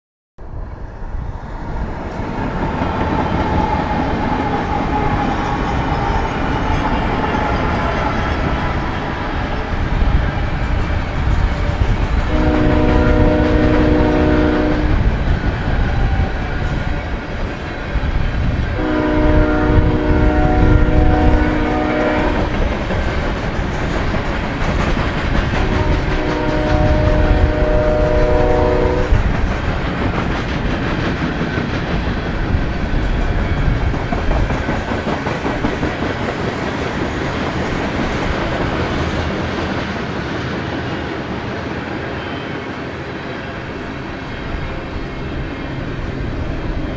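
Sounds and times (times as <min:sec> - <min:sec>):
freight train rumble and clickety-clack: 0:00.4 - 0:46.9
locomotive horn blasts: 0:12.3 - 0:15.1, 0:18.8 - 0:22.6, 0:25.5 - 0:29.2.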